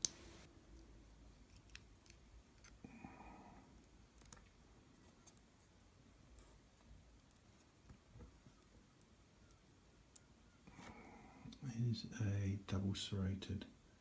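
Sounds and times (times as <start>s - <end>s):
small clicks of lock parts: 4.1s - 4.5s.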